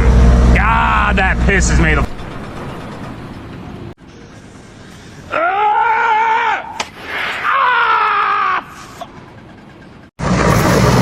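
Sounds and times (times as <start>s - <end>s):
high-pitched scream-like cry: 5.3s - 9.0s.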